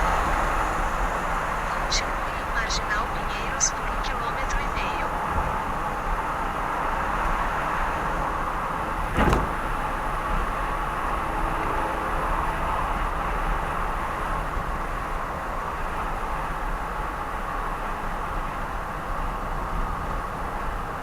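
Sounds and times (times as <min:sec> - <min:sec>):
car driving on expressway: 0:00.0 - 0:02.2.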